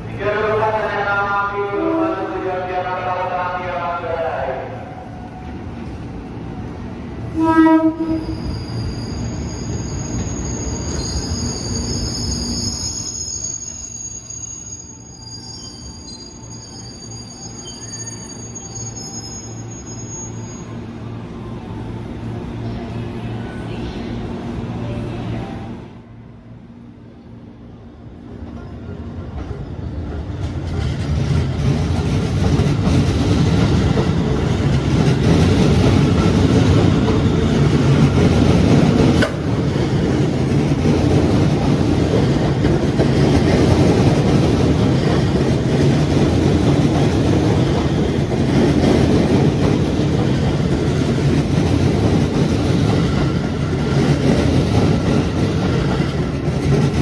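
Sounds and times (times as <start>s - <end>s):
wheels rumbling on rails: 29.2s - 57.0s.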